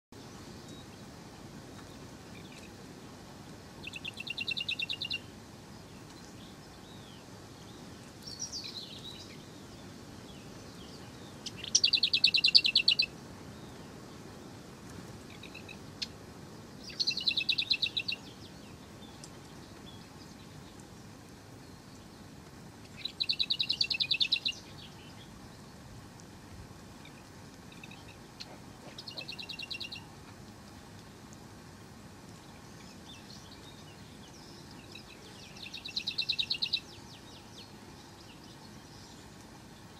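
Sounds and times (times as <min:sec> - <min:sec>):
faint steady hiss: 0:00.1 - 0:39.9
songbird trilling: 0:03.8 - 0:05.3, 0:10.9 - 0:13.1, 0:15.3 - 0:16.2, 0:16.8 - 0:19.2, 0:22.9 - 0:25.3, 0:27.0 - 0:30.1, 0:32.7 - 0:39.2.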